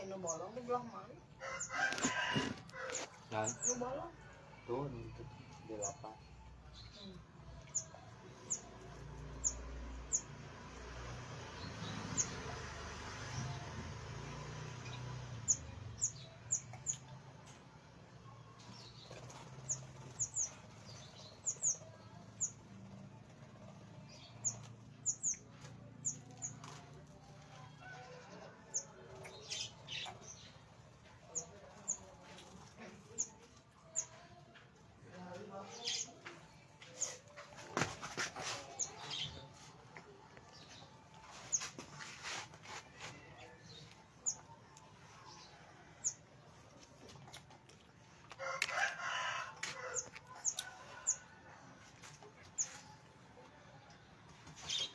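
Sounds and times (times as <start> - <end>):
small birds chirping: 18.3 - 34.6.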